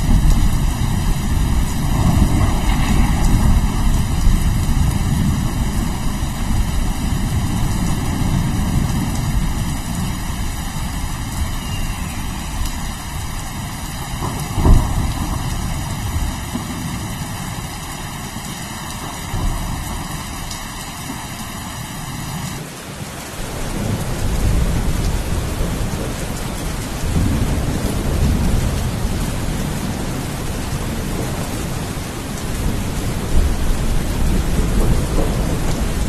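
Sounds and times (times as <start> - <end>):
sharp thunderclap: 0.0 - 11.4, 14.0 - 17.8, 32.6 - 36.0
rolling thunder: 0.0 - 21.1, 23.5 - 36.0
steady rain: 0.0 - 36.0.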